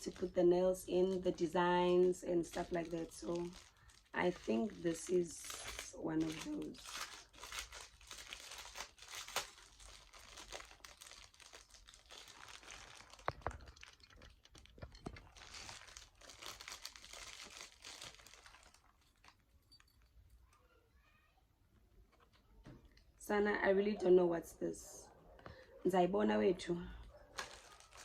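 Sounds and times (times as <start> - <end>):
packaging crinkling and tearing: 0.0 - 19.5, 27.3 - 28.0.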